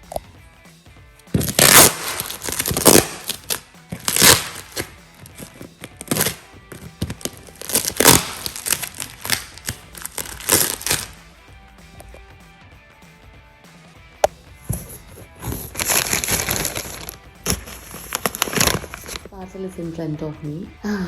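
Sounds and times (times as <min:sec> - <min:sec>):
background music: 0:00.0 - 0:21.0
parcel wrapping ripping: 0:01.3 - 0:11.2, 0:14.7 - 0:19.3.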